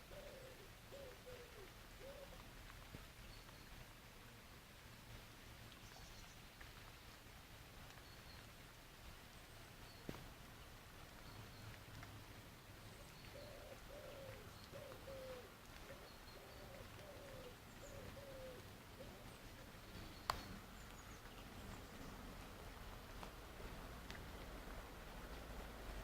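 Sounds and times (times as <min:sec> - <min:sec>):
pigeon cooing: 0:00.0 - 0:02.4, 0:13.3 - 0:19.4
small birds chirping: 0:12.7 - 0:22.7.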